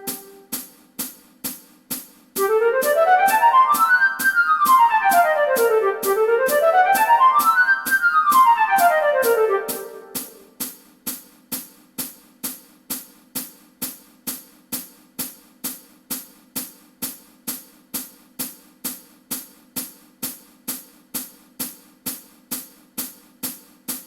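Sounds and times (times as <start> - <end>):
hi-hat-like clicks: 9.7 - 24.0.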